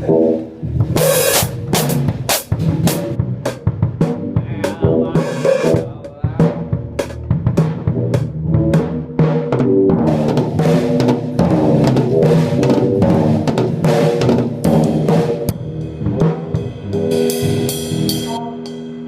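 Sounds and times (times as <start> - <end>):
drum kit playing: 0.0 - 19.0
cymbal ringing: 16.6 - 19.0.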